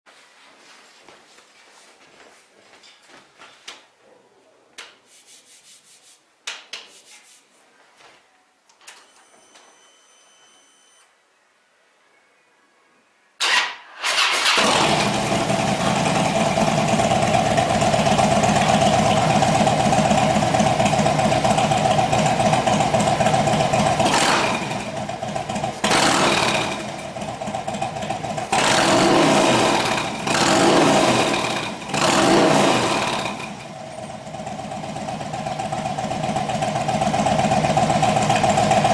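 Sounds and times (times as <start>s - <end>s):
starter cranking: 13.4s - 16.9s
motorcycle engine idling loudly: 14.4s - 38.9s.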